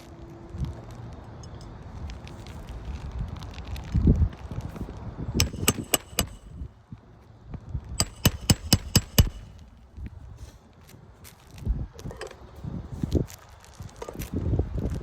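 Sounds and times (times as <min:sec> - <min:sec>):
hammer strikes with metallic ring: 0:05.4 - 0:06.5, 0:08.0 - 0:09.6.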